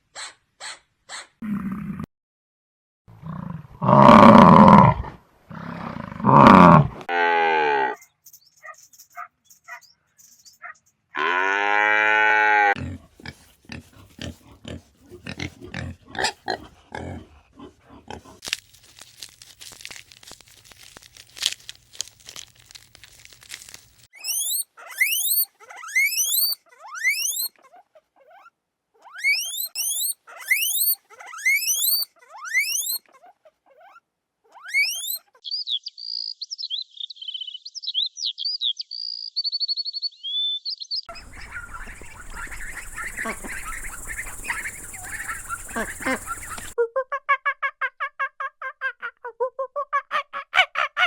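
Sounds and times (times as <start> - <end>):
crackly crunching: 18.1 - 24.1
small animal squeaks: 23.5 - 35.5, 41.1 - 46.8
high chirps and trill: 24.1 - 27.5, 29.2 - 33.0, 34.7 - 35.2.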